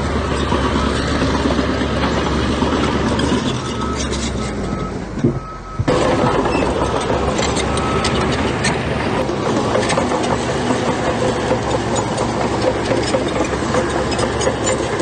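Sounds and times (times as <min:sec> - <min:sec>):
heavy diesel machinery running: 0:00.0 - 0:15.0
reversing alarm beeping: 0:03.6 - 0:08.3.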